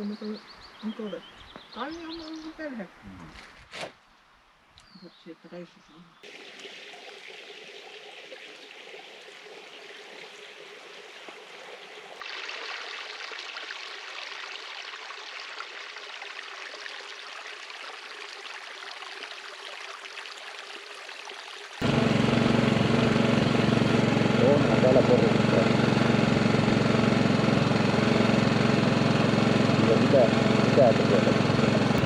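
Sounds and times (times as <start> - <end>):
flowing stream rushing: 6.2 - 22.0.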